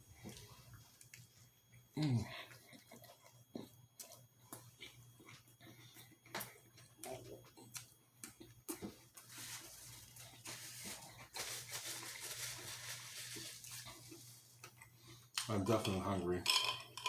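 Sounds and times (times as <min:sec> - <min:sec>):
crackly rustling: 0:08.8 - 0:14.8.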